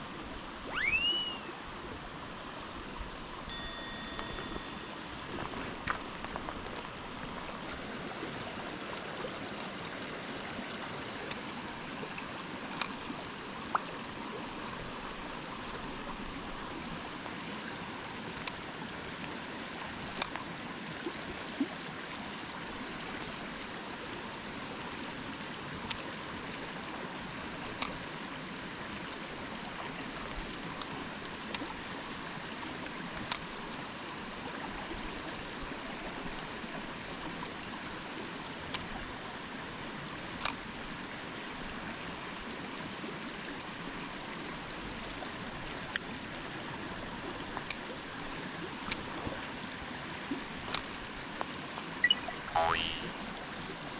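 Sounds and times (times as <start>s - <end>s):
stream running: 0.0s - 53.2s.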